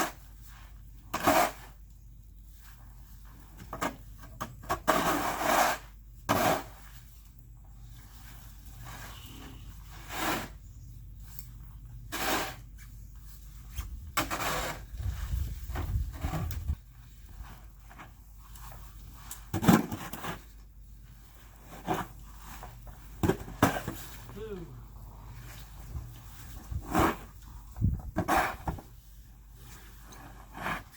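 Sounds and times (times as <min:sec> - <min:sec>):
snow shovel scraping snow: 0:01.1 - 0:01.7, 0:04.9 - 0:07.0, 0:08.2 - 0:10.6, 0:12.1 - 0:12.7, 0:14.2 - 0:16.4, 0:25.3 - 0:30.9.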